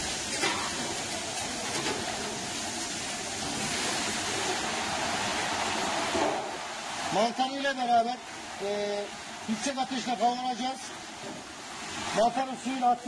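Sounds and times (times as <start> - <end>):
onions sizzling in a pan: 0.0 - 7.2.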